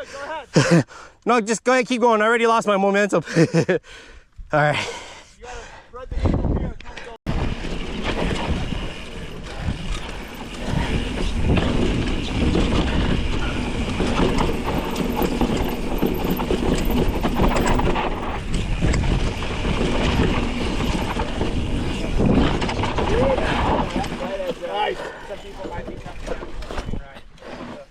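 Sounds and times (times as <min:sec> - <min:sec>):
bike tires crunching: 0:07.3 - 0:27.9
bike frame and chain rattling: 0:07.4 - 0:27.2.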